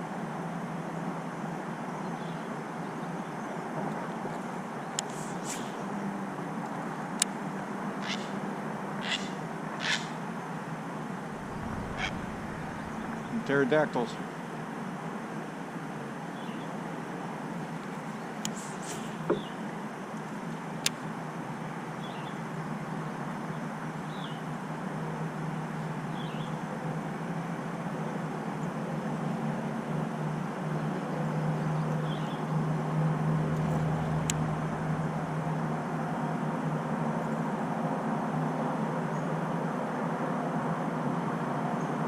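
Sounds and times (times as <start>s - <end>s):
low mechanical hum: 11.0s - 14.6s, 30.0s - 37.6s.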